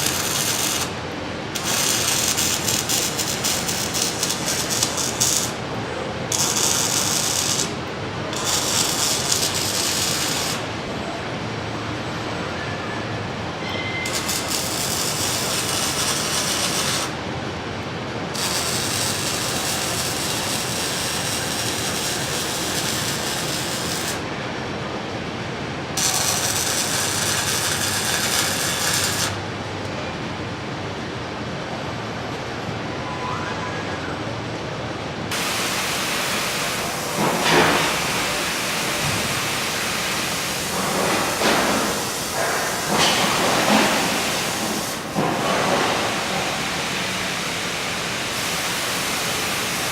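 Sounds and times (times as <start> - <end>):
arc welder hissing crackle: 0.0 - 10.8, 14.0 - 17.2, 18.3 - 24.3, 26.0 - 29.5, 35.3 - 49.9.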